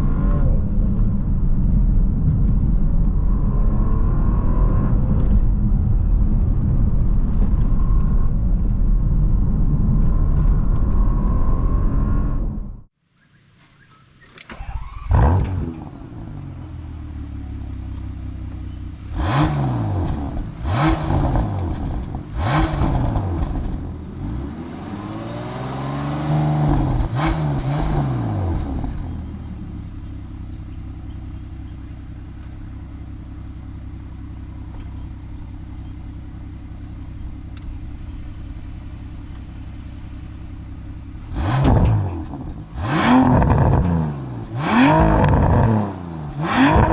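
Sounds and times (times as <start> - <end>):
car engine revving: 14.6 - 31.1, 34.4 - 46.9.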